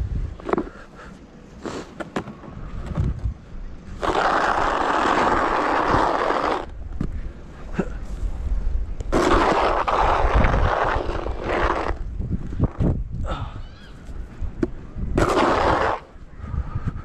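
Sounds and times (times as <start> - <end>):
wind rumble on microphone: 0.0 - 0.8, 2.4 - 17.0
snow shovel scraping ground: 3.9 - 6.7, 9.1 - 12.0, 15.2 - 16.1.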